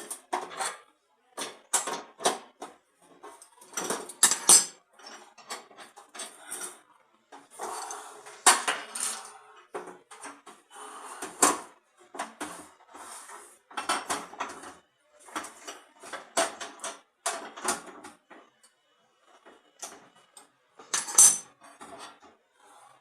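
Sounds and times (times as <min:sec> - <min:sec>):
metal stove parts clinking: 0:03.5 - 0:06.8, 0:20.8 - 0:22.3.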